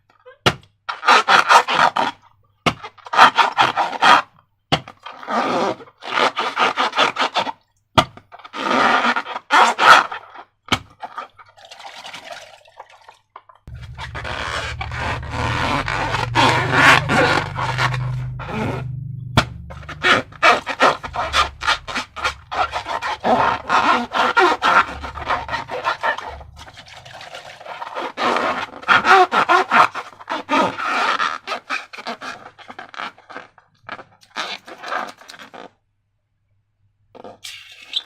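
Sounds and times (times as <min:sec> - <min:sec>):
slime squelching by hand: 0:13.7 - 0:29.9.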